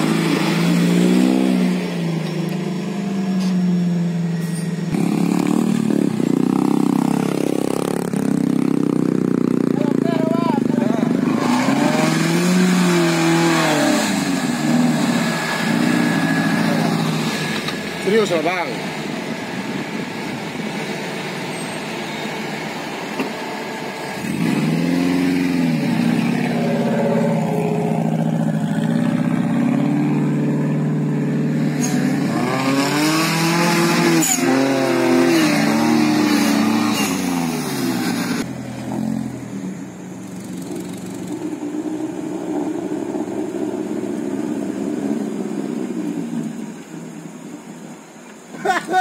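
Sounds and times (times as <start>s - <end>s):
car engine revving in mud: 0.0s - 2.1s, 4.9s - 9.5s, 10.8s - 18.4s, 24.1s - 39.5s.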